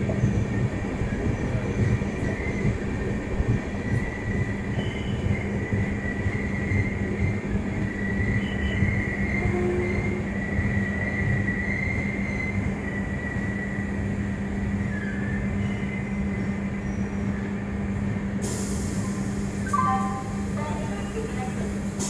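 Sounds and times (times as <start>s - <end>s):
train wheels rumbling on rails: 0.0s - 22.0s
hiss: 18.4s - 19.8s.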